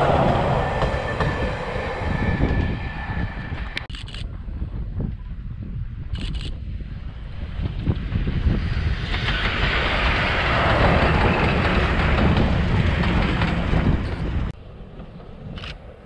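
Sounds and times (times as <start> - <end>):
train rumbling past: 0.0 - 3.9, 6.8 - 16.0
rail noise: 0.0 - 16.0.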